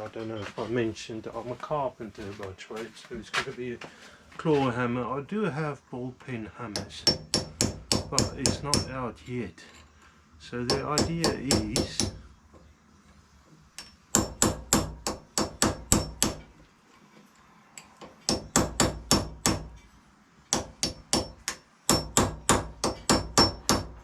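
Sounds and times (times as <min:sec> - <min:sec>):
hammer tapping metal chisel: 0:13.8 - 0:16.5.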